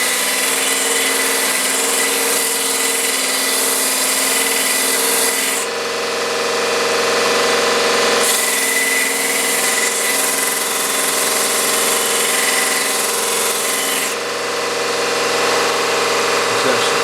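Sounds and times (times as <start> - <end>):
belt sander motor hum: 4.2 - 17.0.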